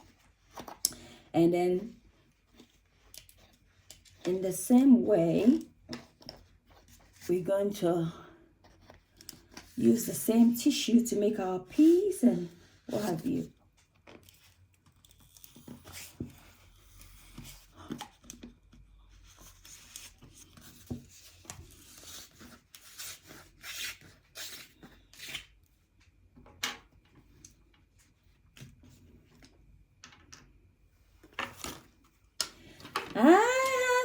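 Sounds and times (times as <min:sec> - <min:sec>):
toilet tissue tearing and rustling: 0:21.2 - 0:25.6.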